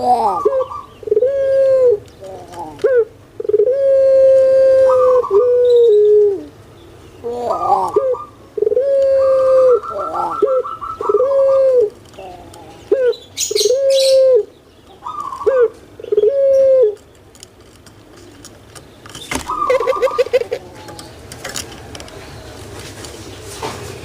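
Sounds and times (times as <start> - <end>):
dove cooing: 0.0 - 6.6, 7.2 - 17.0, 19.3 - 21.1.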